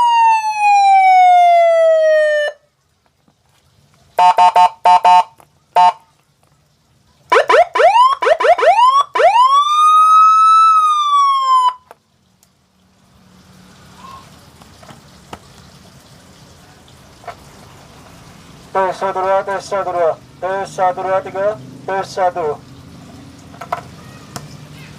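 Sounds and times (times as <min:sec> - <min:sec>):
electronic siren wailing: 0:00.0 - 0:02.6, 0:07.3 - 0:11.9.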